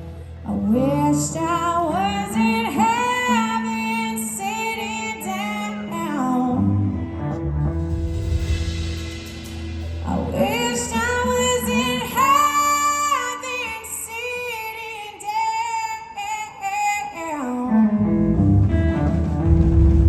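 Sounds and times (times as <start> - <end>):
blues-rock band playing: 5.3 - 12.8, 17.7 - 20.0.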